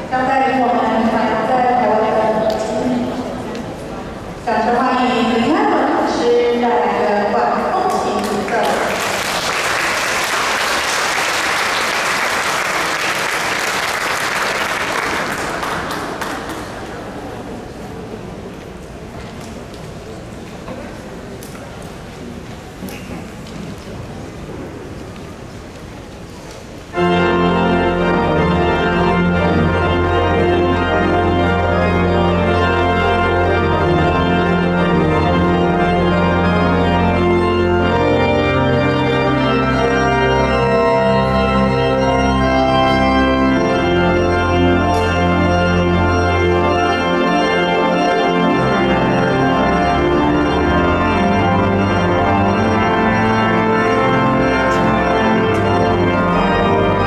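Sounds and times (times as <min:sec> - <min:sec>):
pipe organ chords: 0:26.9 - 0:57.0
deep organ pedal bass: 0:27.0 - 0:57.0.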